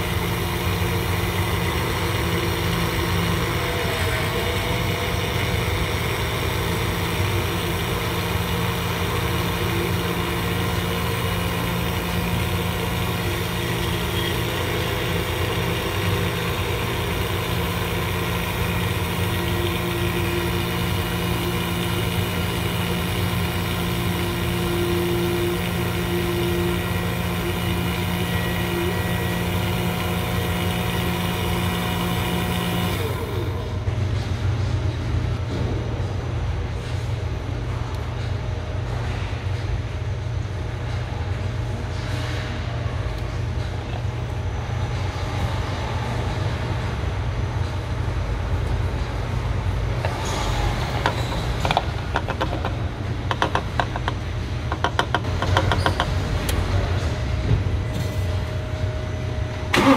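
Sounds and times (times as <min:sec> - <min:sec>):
car engine running steadily: 0:00.0 - 0:39.7.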